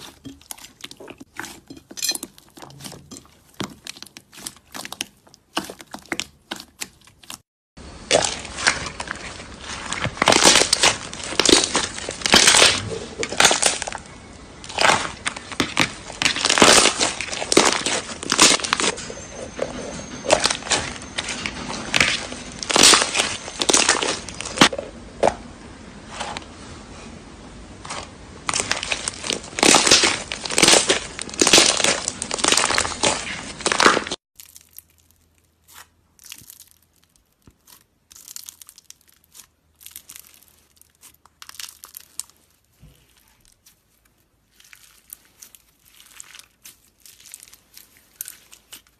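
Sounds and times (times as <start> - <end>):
slime crackling when squeezed: 8.1 - 18.9, 28.5 - 48.9.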